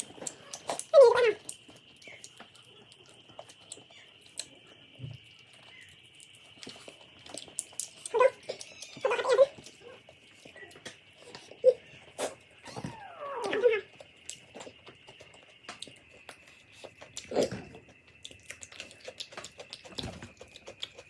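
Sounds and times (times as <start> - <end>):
pet animal crying: 8.1 - 10.0, 12.6 - 13.9.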